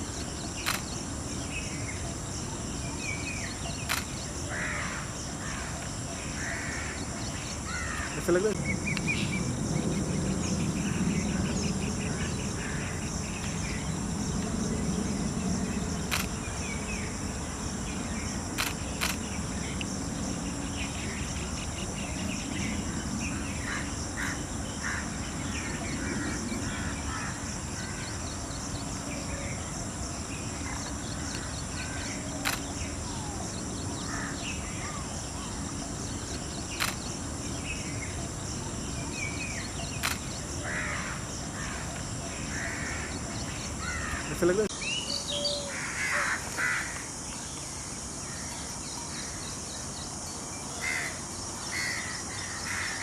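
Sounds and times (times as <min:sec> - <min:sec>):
birds chirping: 0:00.0 - 0:46.4
high insect drone: 0:00.0 - 0:53.0
sharp clicks: 0:00.6 - 0:01.0, 0:03.8 - 0:04.2, 0:16.1 - 0:16.4, 0:18.6 - 0:19.2, 0:32.4 - 0:32.7, 0:36.8 - 0:37.1, 0:40.0 - 0:40.3
low rumble: 0:08.6 - 0:18.3.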